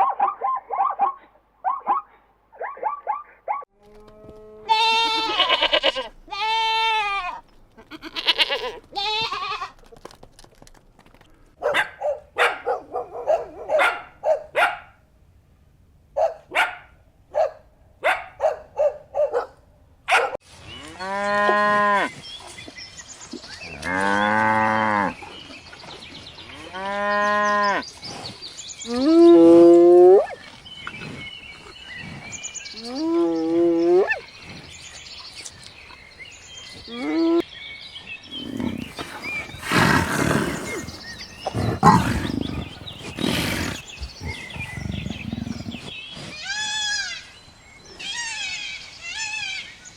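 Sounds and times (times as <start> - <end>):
cattle mooing: 38.3 - 45.9
short animal calls: 38.3 - 45.9.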